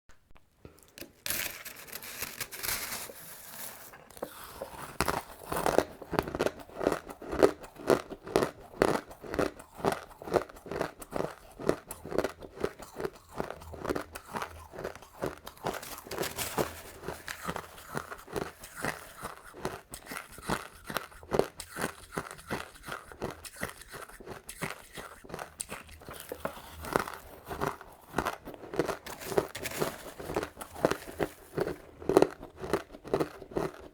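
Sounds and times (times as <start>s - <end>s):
crushed ice being chewed: 0.8s - 33.9s.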